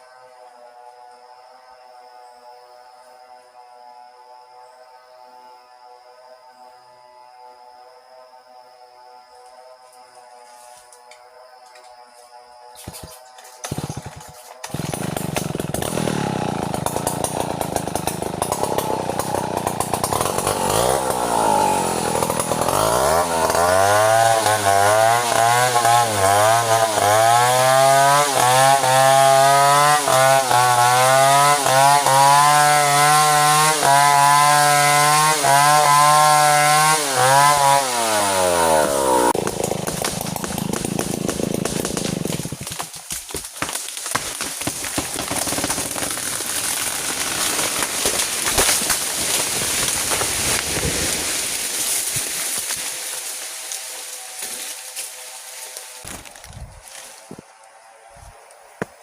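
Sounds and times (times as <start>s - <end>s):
chainsaw cutting timber: 12.8s - 57.4s.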